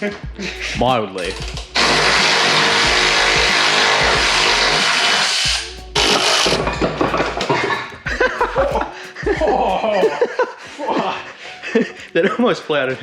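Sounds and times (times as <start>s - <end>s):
power tool on metal: 1.8s - 6.6s.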